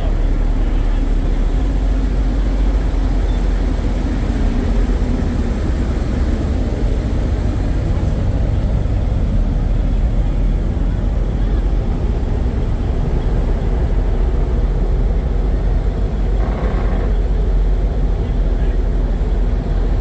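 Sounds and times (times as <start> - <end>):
diesel engines idling: 0.0 - 20.0.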